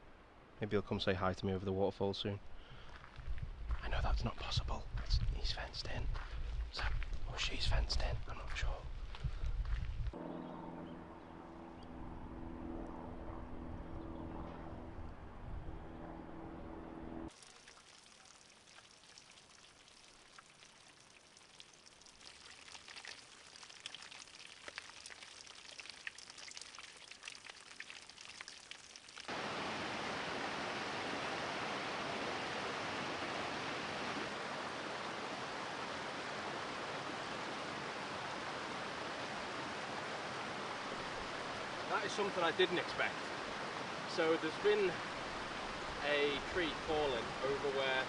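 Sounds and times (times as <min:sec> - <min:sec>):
water trickling and dripping: 0:17.3 - 0:31.2
waterfall rushing: 0:29.3 - 0:48.0.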